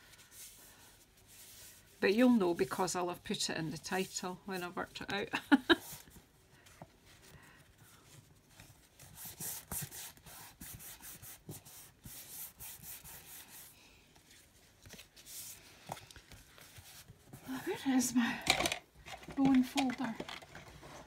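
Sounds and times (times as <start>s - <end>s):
paper brushing and scraping on desk: 0.0s - 2.8s, 3.7s - 18.0s.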